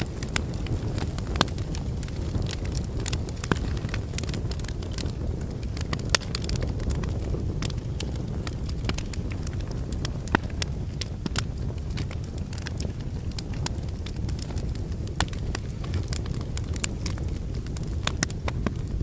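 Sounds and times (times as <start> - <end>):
fire flames rumbling: 0.0 - 19.0
logs crackling and popping: 0.0 - 19.0.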